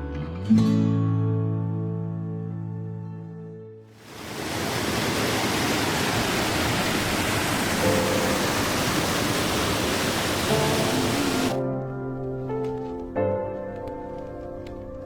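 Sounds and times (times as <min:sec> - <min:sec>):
waterfall rushing: 0:04.0 - 0:11.6
faint background music: 0:11.0 - 0:15.0.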